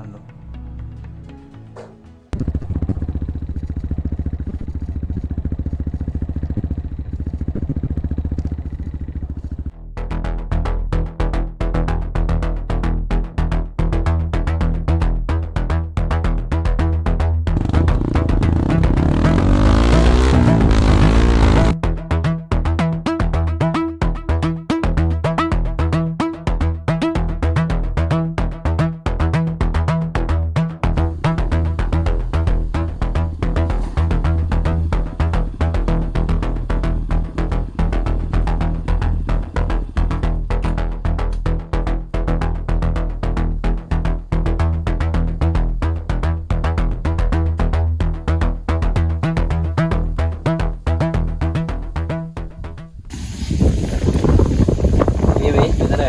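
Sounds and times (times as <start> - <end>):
heavy bass line: 1.6 - 56.0
motorcycle engine idling: 1.7 - 9.7, 17.6 - 21.8, 30.9 - 43.6, 53.8 - 56.0
electronic music: 9.9 - 52.8
drum-machine beat: 13.5 - 52.4
synthesizer notes: 17.6 - 27.6.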